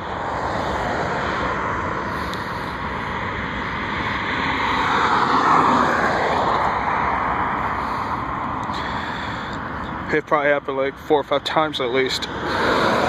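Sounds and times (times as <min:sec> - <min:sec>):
jet engines roaring past: 0:00.0 - 0:13.0.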